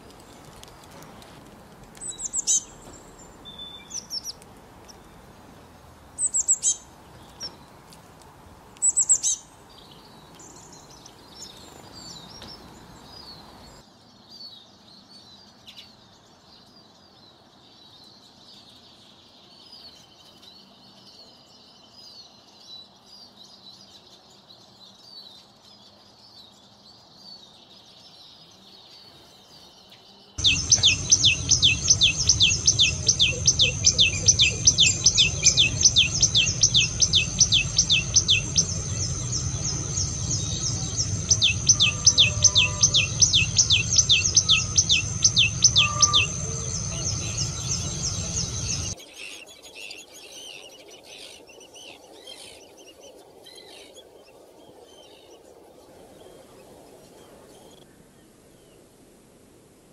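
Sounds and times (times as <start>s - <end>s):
bird's loud rising call: 30.4s - 49.0s
steady high background tone: 30.4s - 49.0s.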